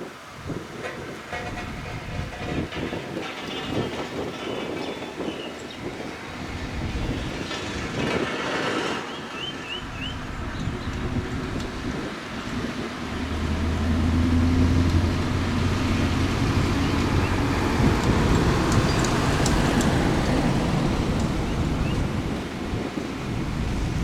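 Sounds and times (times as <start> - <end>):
heavy diesel machine humming: 9.8 - 24.0.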